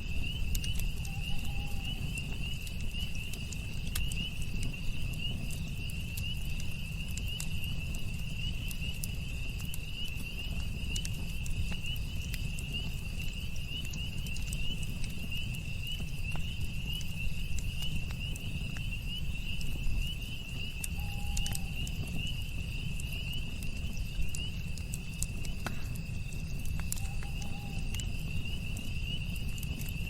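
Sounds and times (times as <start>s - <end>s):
campfire crackling and popping: 0.0s - 30.0s
insects trilling: 0.0s - 30.0s.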